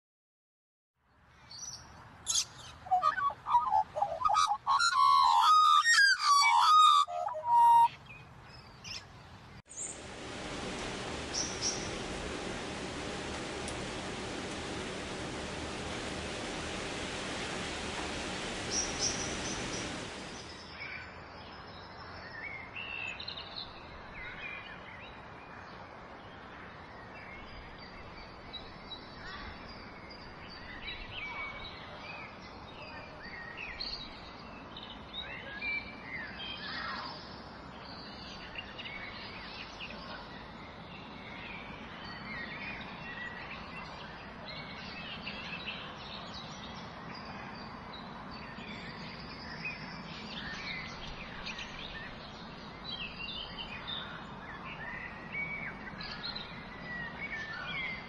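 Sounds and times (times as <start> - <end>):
birds chirping and whistling: 2.4 - 8.0
outdoor background hiss: 7.9 - 21.6, 35.8 - 58.0.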